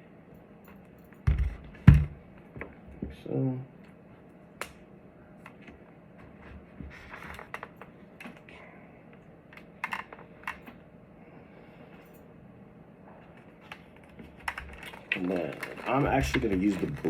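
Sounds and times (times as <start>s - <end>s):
plastic parts clicking and tapping: 13.6s - 17.0s.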